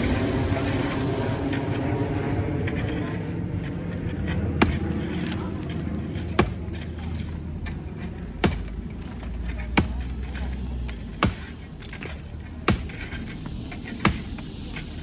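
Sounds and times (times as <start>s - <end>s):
low rumble: 0.0s - 15.0s
hammer striking brick wall: 3.7s - 15.0s.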